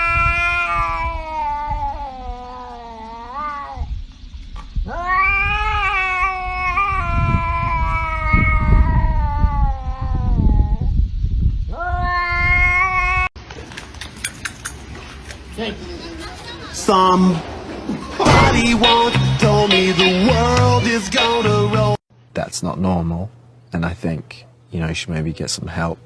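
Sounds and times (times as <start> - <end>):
cat yowling: 0.0 - 3.9, 4.9 - 10.9, 11.7 - 13.3
low rumbling noise: 16.8 - 20.8.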